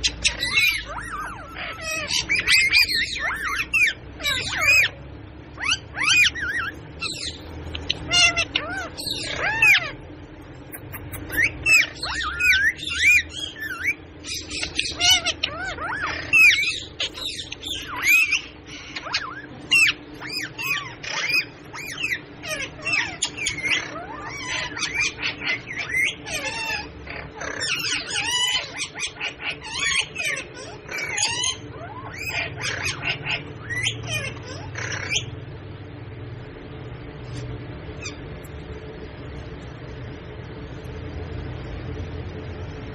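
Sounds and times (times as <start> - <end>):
parrot squawks and whistles: 0.0 - 5.0, 5.6 - 10.0, 10.7 - 35.3.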